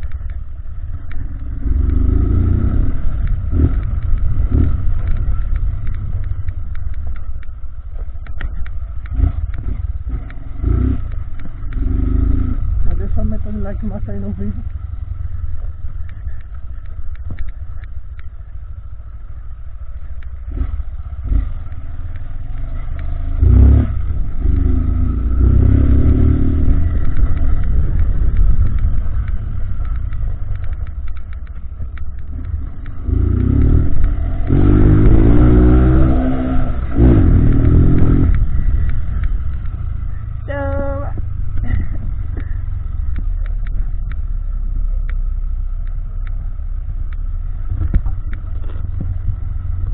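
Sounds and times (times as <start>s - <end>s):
motorcycle engine revving hard: 9.1s - 12.7s, 22.5s - 28.8s, 32.4s - 39.3s.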